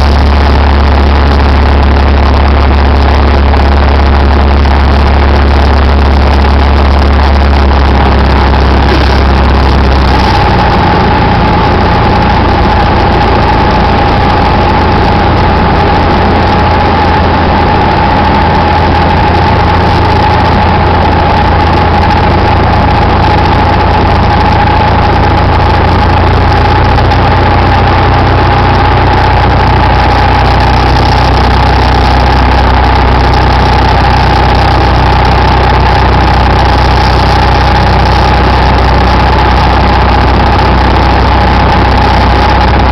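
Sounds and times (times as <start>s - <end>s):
aircraft engine and propeller droning: 0.0s - 42.9s
steady high tone: 0.0s - 42.9s.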